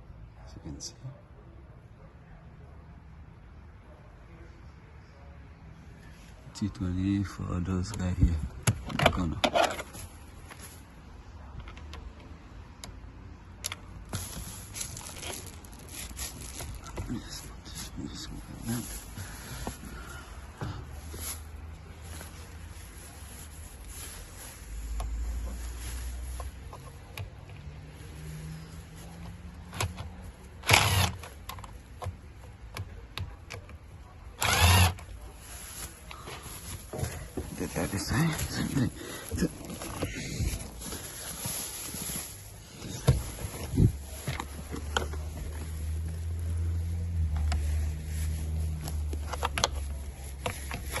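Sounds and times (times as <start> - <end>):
power driver spinning screws: 30.6 - 31.2, 34.4 - 35.0.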